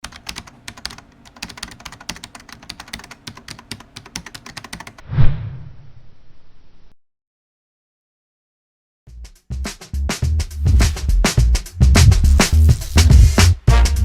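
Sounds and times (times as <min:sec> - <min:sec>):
fast keyboard typing: 0:00.0 - 0:05.0.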